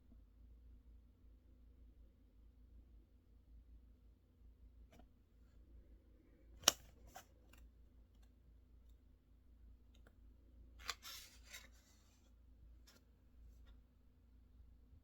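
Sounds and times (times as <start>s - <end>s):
paper rustling: 10.8s - 12.3s.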